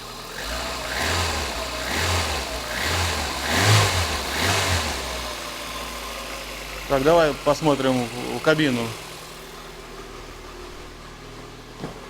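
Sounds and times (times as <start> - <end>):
car engine revving in blips: 0.0 - 6.1.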